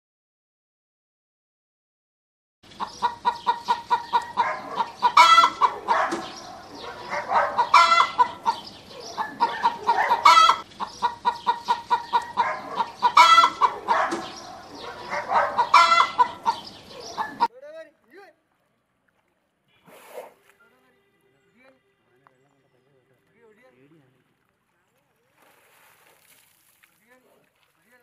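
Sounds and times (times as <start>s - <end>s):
chickens clucking: 2.6s - 17.5s
chicken squawk: 2.8s - 17.5s.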